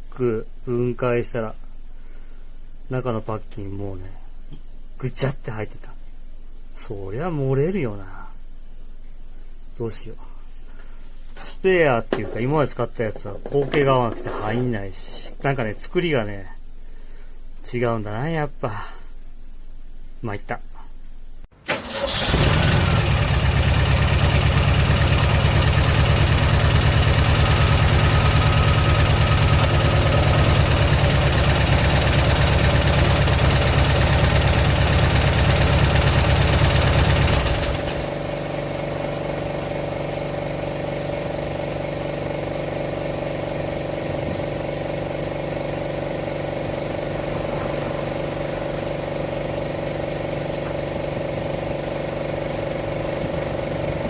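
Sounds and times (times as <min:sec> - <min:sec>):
air compressor running: 0:21.7 - 0:54.0.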